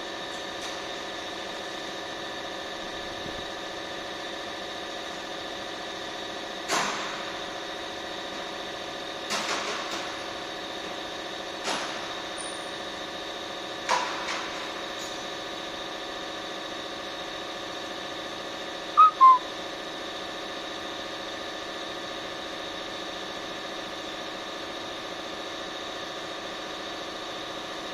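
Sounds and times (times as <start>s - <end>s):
short high chirps: 19.0s - 19.4s.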